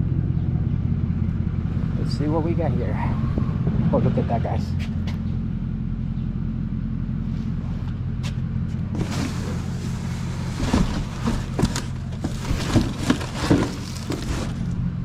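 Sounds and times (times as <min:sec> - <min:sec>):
vehicle engine idling: 0:00.0 - 0:15.0
rummaging and rustling: 0:08.9 - 0:14.8
knocks of objects being handled: 0:10.6 - 0:14.6.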